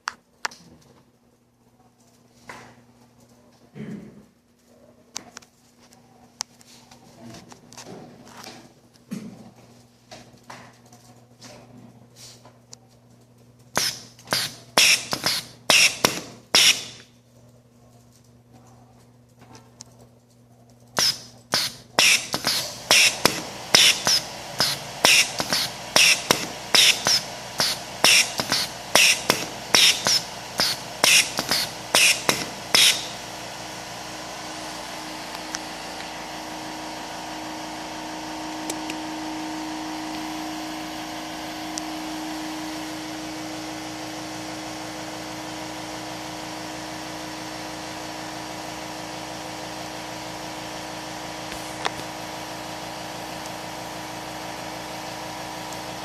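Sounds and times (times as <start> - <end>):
steady low hum: 0.7 - 44.7
air hissing: 13.7 - 17.0, 21.0 - 33.5
pneumatic cylinders clacking: 13.7 - 17.1, 21.0 - 33.2.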